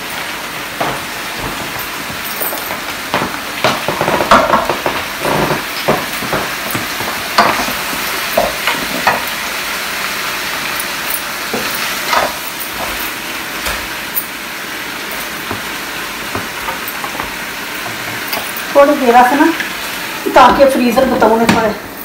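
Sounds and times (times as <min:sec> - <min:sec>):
vegetables sizzling in oil: 0:00.0 - 0:22.0
spatula scraping and knocking pan: 0:00.5 - 0:09.4, 0:11.5 - 0:14.0, 0:15.2 - 0:18.8.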